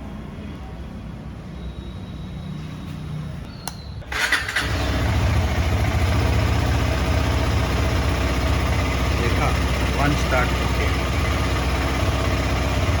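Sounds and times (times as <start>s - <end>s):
motorcycle engine starting and idling: 4.0s - 13.0s.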